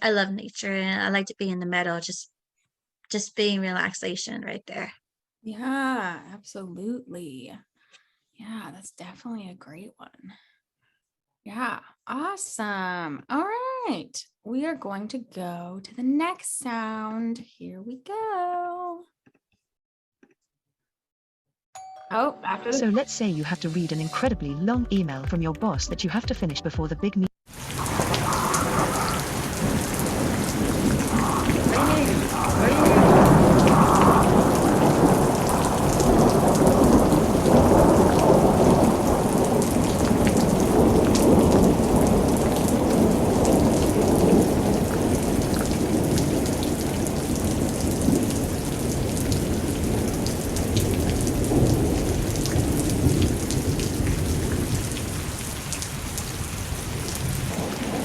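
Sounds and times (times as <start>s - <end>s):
heavy rain: 27.5s - 58.0s
rolling thunder: 27.6s - 58.0s.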